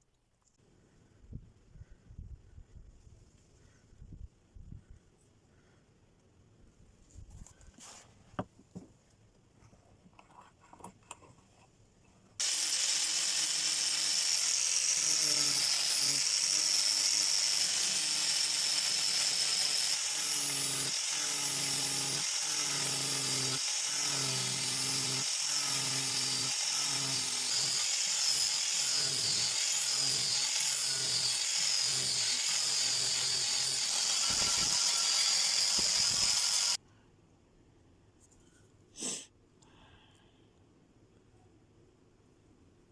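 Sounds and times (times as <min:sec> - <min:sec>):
power grinder on steel: 0:12.4 - 0:36.8.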